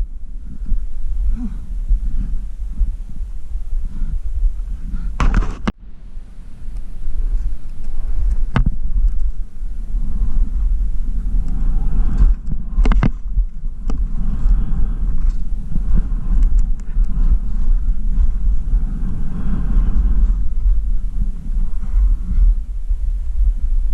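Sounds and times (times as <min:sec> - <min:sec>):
wind rumbling on microphone: 0:00.0 - 0:23.9
skis scraping over snow: 0:06.7 - 0:23.9.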